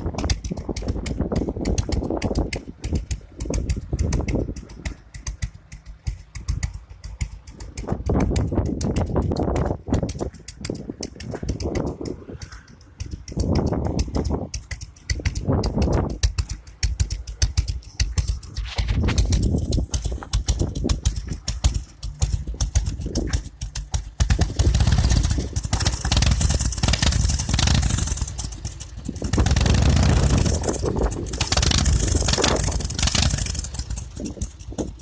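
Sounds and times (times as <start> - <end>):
motorcycle engine idling and revving: 0.0 - 35.0.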